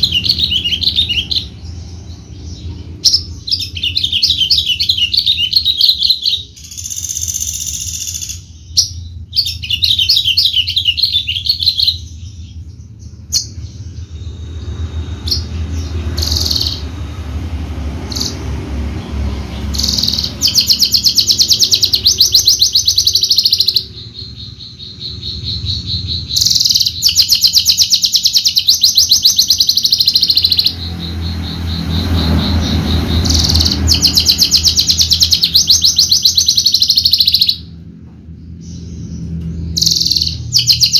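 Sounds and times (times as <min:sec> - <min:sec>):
bush lark singing rapid trills: 0:18.0 - 0:37.7, 0:38.6 - 0:40.9.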